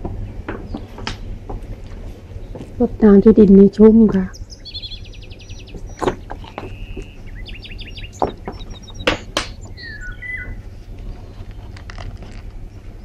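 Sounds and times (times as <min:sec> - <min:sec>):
sharp knocks: 0:00.0 - 0:01.7, 0:05.7 - 0:07.2, 0:08.2 - 0:09.8
small birds chirping: 0:00.0 - 0:13.0
steady low rumble: 0:00.0 - 0:13.0.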